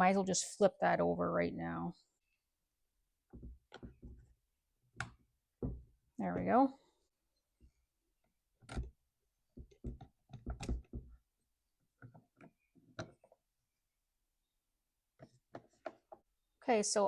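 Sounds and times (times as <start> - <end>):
parts knocking on workbench: 5.6 - 5.9.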